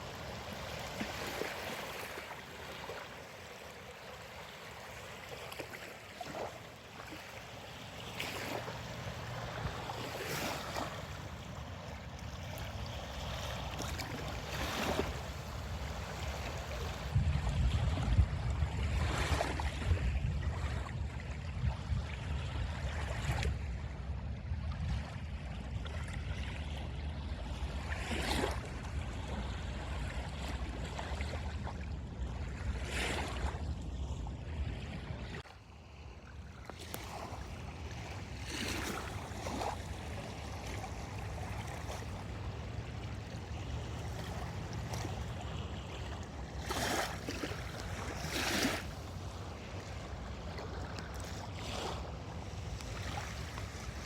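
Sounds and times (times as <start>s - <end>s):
small waves washing onto beach: 0.0s - 54.0s
wind buffeting microphone: 13.9s - 26.5s.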